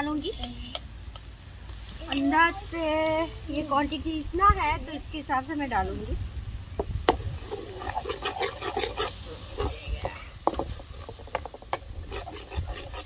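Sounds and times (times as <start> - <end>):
food frying in oil: 0.0 - 13.0
ladle scraping a wok: 7.1 - 13.0.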